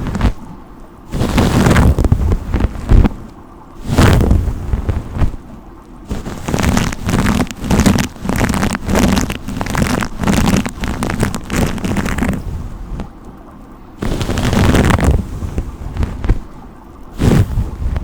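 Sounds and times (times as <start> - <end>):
brush strokes rubbing microphone: 0.0 - 0.4, 1.1 - 3.2, 3.8 - 5.4, 6.1 - 13.1, 14.0 - 16.5, 17.2 - 18.0.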